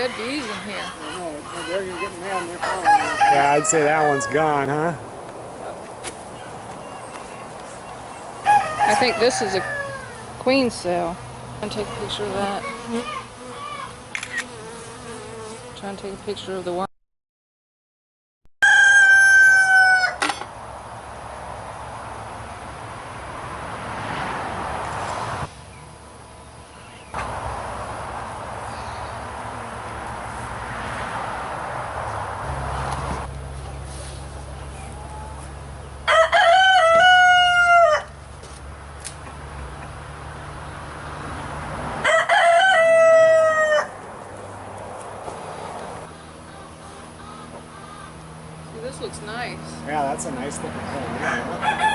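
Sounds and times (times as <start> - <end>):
rooster crowing: 0.0 - 4.6, 8.4 - 10.3, 18.6 - 20.3, 34.8 - 38.2, 41.9 - 44.1, 51.2 - 51.9.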